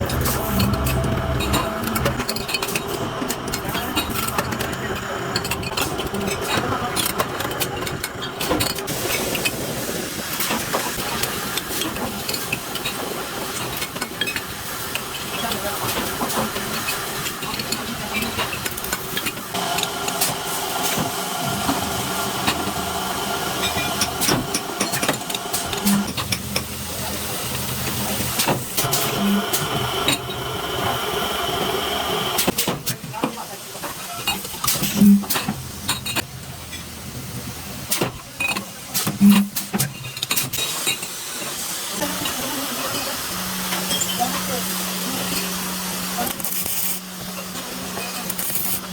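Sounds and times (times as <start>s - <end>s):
mid-pitched hum: 0.0s - 5.8s.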